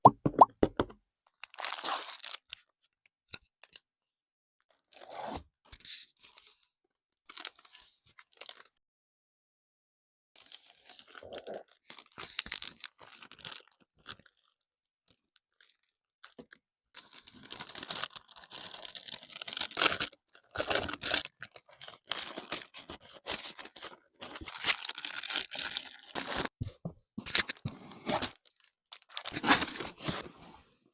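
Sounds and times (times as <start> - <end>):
packaging crinkling and tearing: 1.4 - 2.6, 11.0 - 14.6, 17.0 - 26.5, 27.3 - 30.2.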